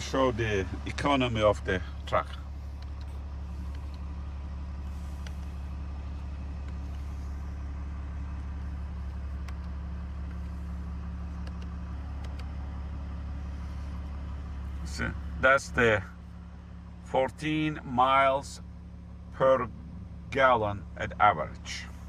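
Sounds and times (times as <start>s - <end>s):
diesel engine idling: 0.0s - 22.0s
faint clicks: 11.4s - 12.6s.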